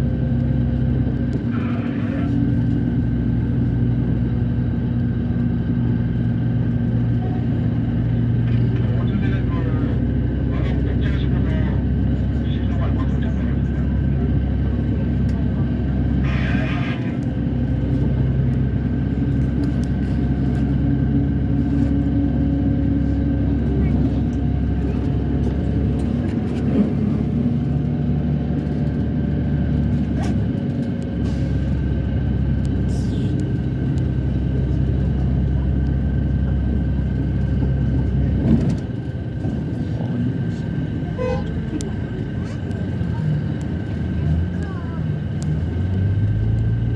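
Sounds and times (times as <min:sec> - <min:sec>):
vehicle drone in motion: 0:00.0 - 0:46.9.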